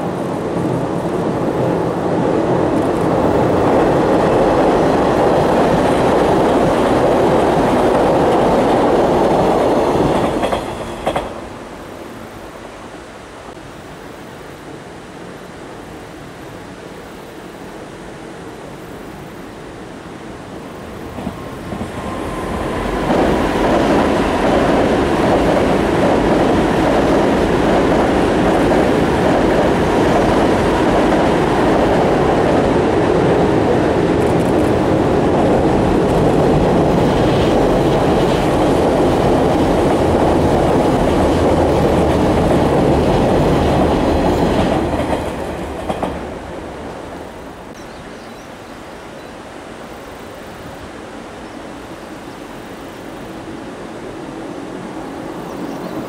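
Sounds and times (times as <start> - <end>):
train wheels clattering over bridge: 0.3 - 11.6, 20.8 - 47.4.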